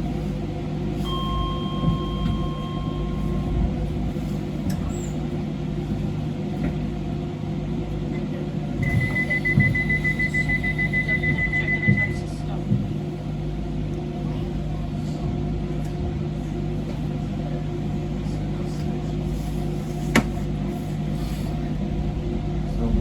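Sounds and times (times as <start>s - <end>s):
train electrical hum: 0.0s - 23.0s
rapid door warning beeps: 1.1s - 3.4s, 8.8s - 12.2s.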